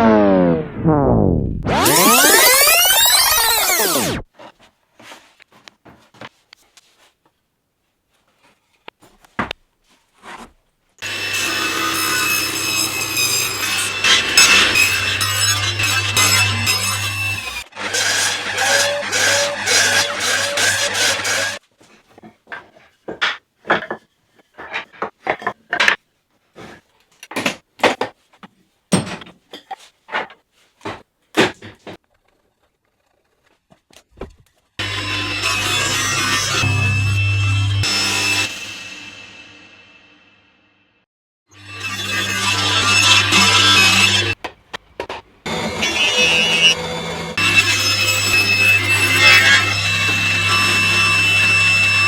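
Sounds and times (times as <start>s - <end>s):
wood knocks and scrapes: 8.2s - 10.6s, 21.8s - 34.7s
woodworking machine running: 11.0s - 21.6s, 45.5s - 52.0s.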